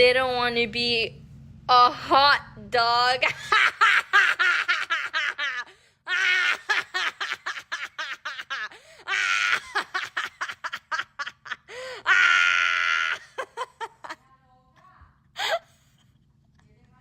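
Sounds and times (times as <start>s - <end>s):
person laughing hard: 3.3s - 14.2s.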